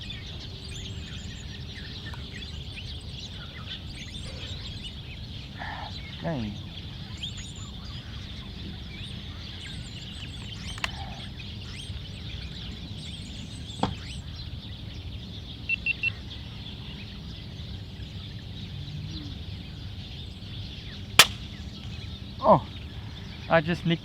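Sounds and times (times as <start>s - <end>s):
birds calling: 0.0s - 13.2s, 19.2s - 23.6s
air rifle shot: 21.2s - 21.6s.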